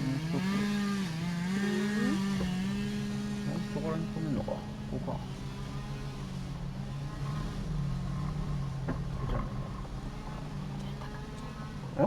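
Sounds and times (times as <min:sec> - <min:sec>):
car engine low hum: 0:00.0 - 0:12.0.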